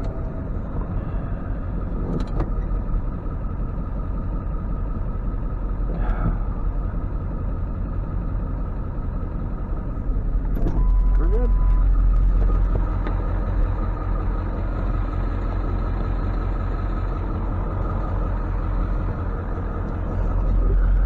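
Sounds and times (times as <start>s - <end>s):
tow truck engine rumble: 0.0s - 21.0s.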